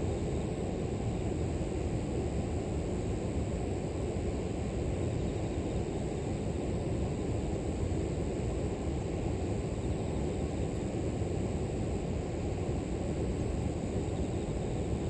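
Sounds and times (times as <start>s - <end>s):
insects chirring in grass: 13.5s - 15.0s.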